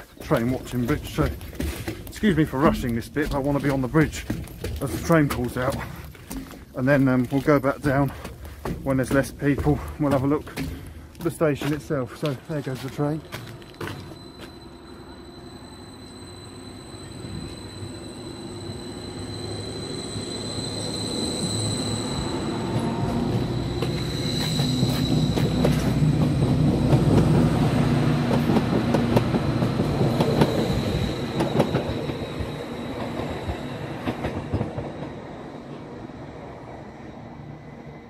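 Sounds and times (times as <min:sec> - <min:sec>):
wheels clicking on track: 0:00.0 - 0:15.0, 0:20.6 - 0:35.2
train running: 0:00.0 - 0:38.0.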